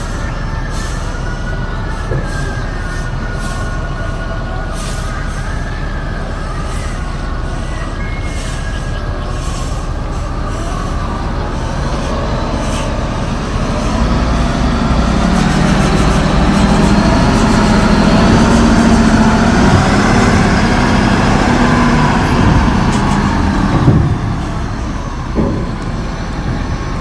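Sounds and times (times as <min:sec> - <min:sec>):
faint metallic squeals and clanks: 0:00.0 - 0:26.5
heavy truck engine hum: 0:00.0 - 0:27.0
steady mechanical rumble: 0:00.0 - 0:27.0.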